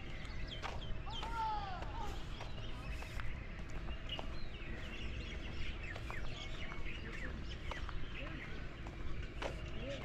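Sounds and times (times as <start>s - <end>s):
faint footsteps on dry path: 0.0s - 10.0s
small birds chirping: 0.0s - 10.0s.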